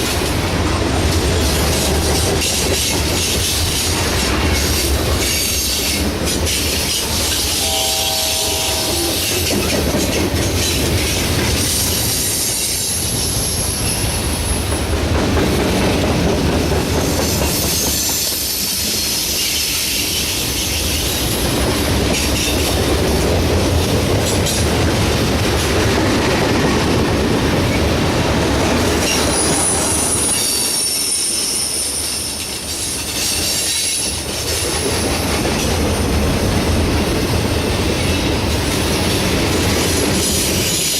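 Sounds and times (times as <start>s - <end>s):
wheels clacking over rail joints: 0.0s - 7.6s
train cars rumbling past: 0.0s - 40.9s.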